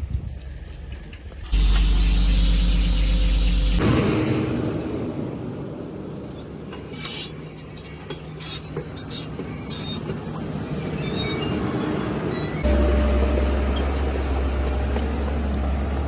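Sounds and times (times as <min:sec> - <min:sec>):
heavy diesel machinery running: 0:01.4 - 0:08.1, 0:08.8 - 0:16.0.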